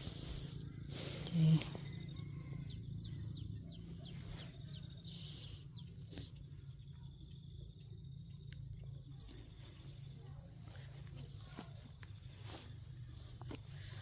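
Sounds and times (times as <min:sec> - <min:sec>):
steady low rumble: 0:00.0 - 0:14.0
bird chirping: 0:00.2 - 0:10.5.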